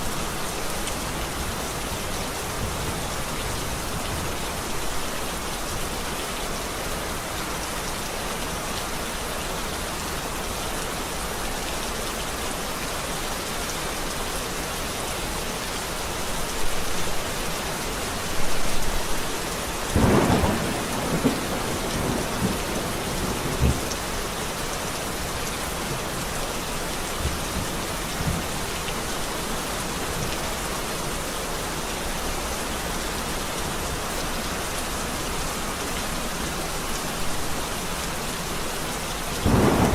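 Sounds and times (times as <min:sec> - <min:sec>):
steady rain: 0:00.0 - 0:39.9
thunder cracks and rumbles: 0:19.9 - 0:24.0, 0:39.4 - 0:39.9.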